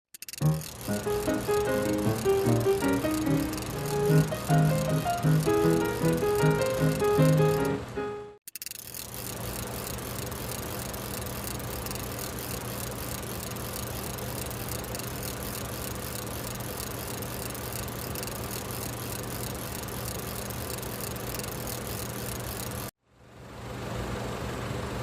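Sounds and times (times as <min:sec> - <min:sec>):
drone propellers whirring: 0:00.2 - 0:07.8.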